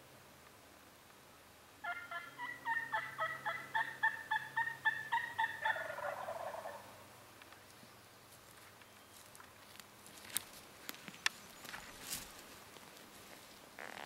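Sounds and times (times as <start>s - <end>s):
turkey yelping: 1.8s - 7.0s.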